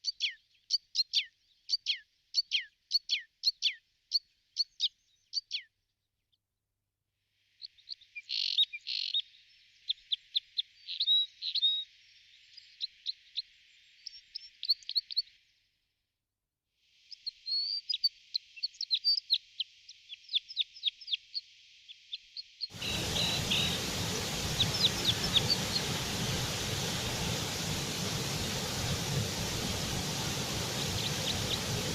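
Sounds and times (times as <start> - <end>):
small birds chirping and trilling: 17.1 - 31.9
steady hiss: 22.7 - 31.9.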